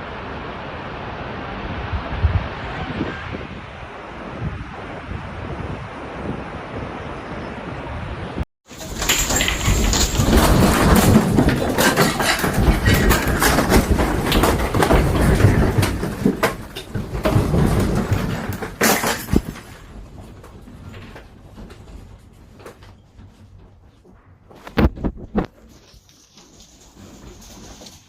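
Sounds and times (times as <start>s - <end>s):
loose objects rattling and banging: 8.7s - 28.0s.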